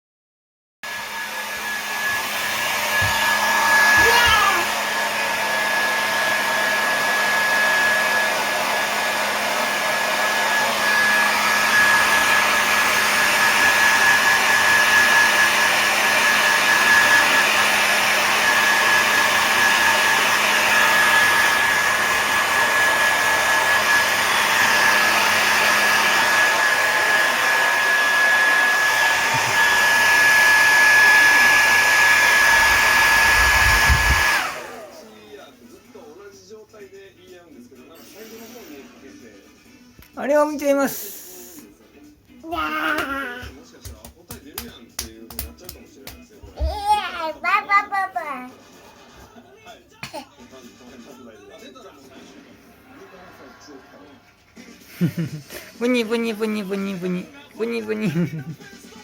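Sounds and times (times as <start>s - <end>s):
hair dryer running: 0.8s - 35.4s, 42.5s - 49.1s, 54.6s - 59.0s.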